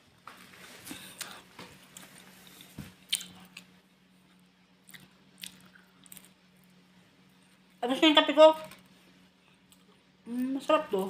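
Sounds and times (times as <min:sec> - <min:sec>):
faint steady hum: 0:00.0 - 0:11.0
crunching of pizza being chewed: 0:00.8 - 0:07.7.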